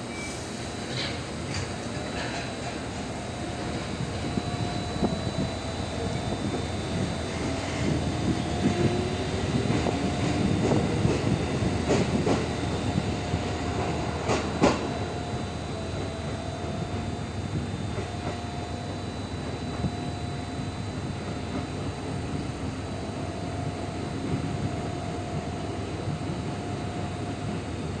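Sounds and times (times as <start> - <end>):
train rumble: 0.0 - 28.0
train wheels clacking over rail joints: 0.7 - 5.2, 13.8 - 15.0.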